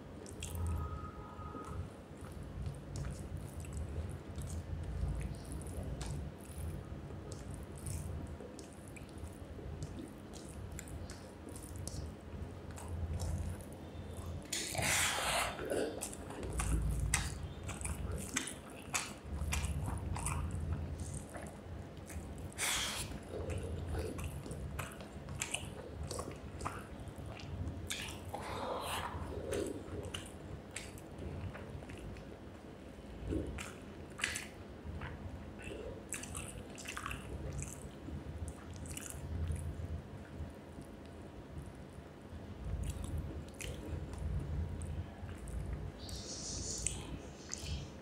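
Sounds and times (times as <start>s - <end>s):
person chewing food: 0.2s - 1.0s, 1.6s - 39.8s, 42.7s - 48.0s.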